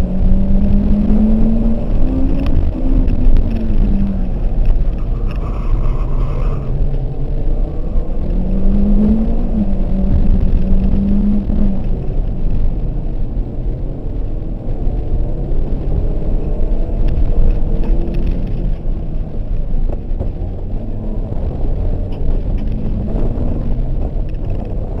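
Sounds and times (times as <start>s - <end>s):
car engine revving: 0.0s - 25.0s
road and wind rumble: 0.0s - 25.0s.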